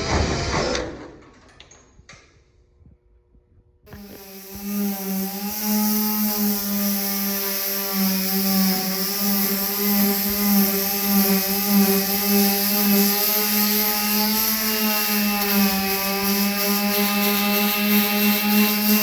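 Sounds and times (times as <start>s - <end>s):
power sander on sheet metal: 3.9s - 19.0s.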